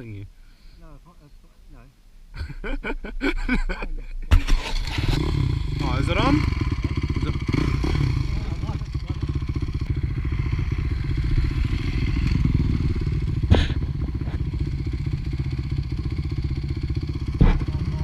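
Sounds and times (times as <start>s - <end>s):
dirt bike engine idling: 4.8s - 18.0s.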